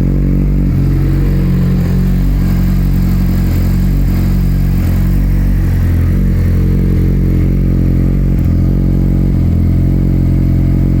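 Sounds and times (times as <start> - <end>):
motorcycle engine running steadily: 0.0 - 11.0.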